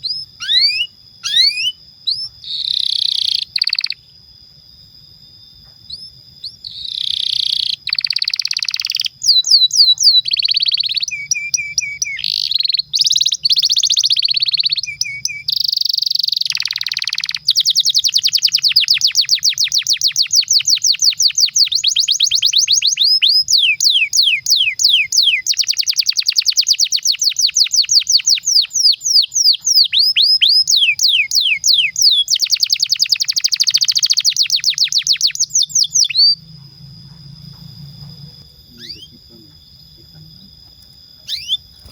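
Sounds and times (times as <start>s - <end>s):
canary singing: 0.0s - 4.2s, 5.6s - 41.9s.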